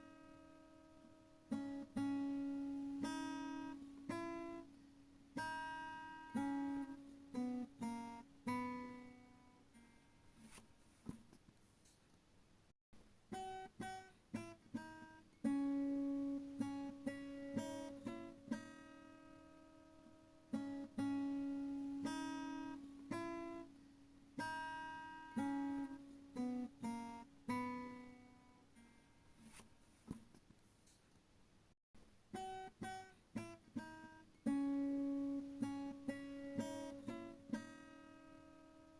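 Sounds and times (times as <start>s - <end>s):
acoustic guitar slow melody: 0.0s - 11.1s, 13.3s - 30.1s, 32.3s - 38.9s.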